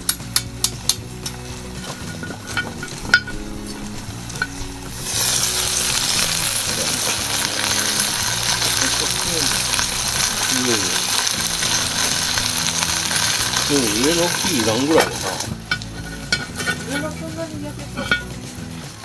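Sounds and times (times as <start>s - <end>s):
food sizzling in a pot: 0.0s - 19.0s.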